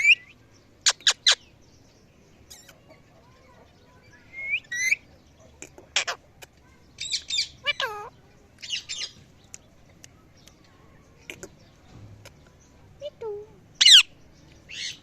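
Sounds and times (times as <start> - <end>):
parrot calling: 0.0 - 1.5, 4.2 - 5.0, 5.6 - 6.2, 7.0 - 9.2, 13.1 - 14.1
faint clicks: 9.4 - 10.7.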